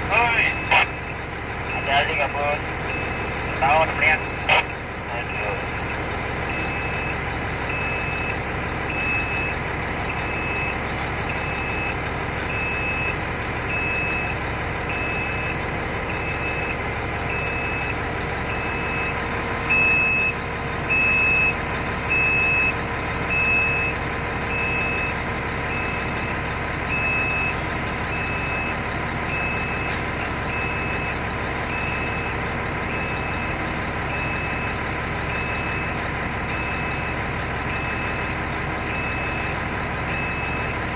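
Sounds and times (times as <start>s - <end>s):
engine droning: 0.0s - 40.9s
electronic beeper beeping: 0.2s - 18.0s, 28.1s - 38.3s.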